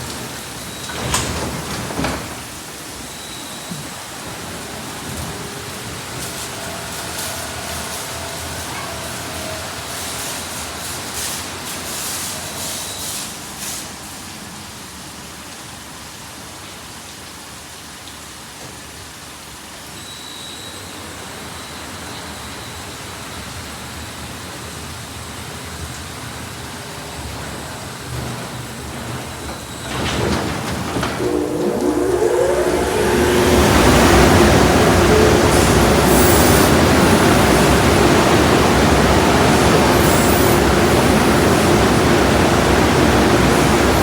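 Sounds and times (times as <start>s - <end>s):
car wash spraying water: 0.0s - 15.2s, 24.6s - 44.0s.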